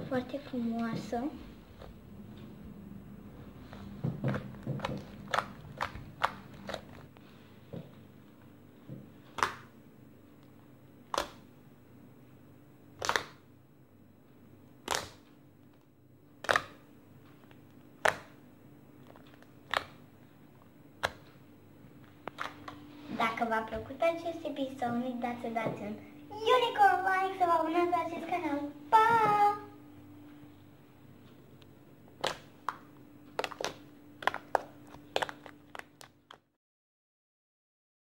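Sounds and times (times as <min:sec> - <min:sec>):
slime popping: 0:04.2 - 0:07.1, 0:09.3 - 0:09.7, 0:11.1 - 0:11.5, 0:13.0 - 0:13.4, 0:14.8 - 0:15.2, 0:16.4 - 0:16.8, 0:18.0 - 0:18.4, 0:19.0 - 0:20.0, 0:32.2 - 0:36.3.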